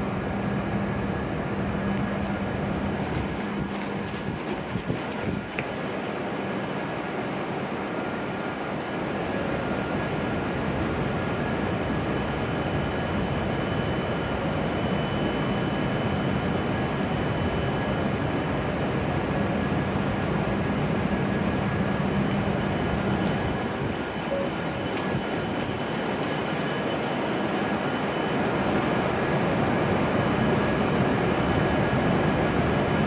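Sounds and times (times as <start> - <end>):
train equipment humming and hissing: 0.0 - 33.0.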